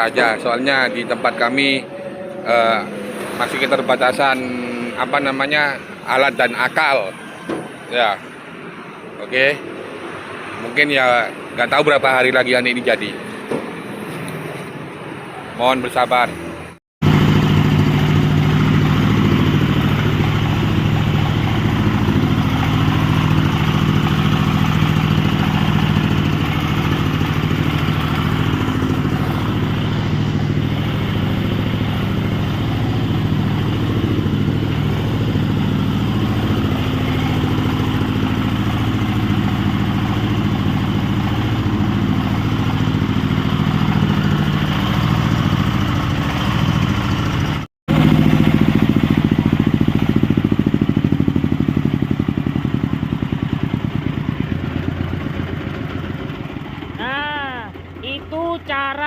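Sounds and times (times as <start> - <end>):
engine running steadily: 17.0 - 59.0.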